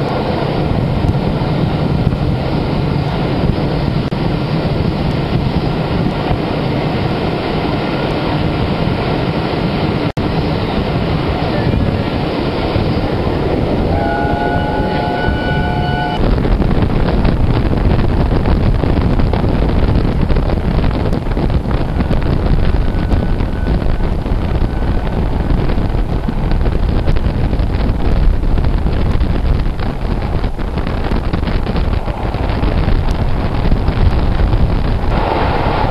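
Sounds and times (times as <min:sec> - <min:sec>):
train wheel and track rumble: 0:00.0 - 0:35.9
wind rushing on microphone: 0:00.0 - 0:35.9
brief multi-note tone: 0:13.9 - 0:16.2.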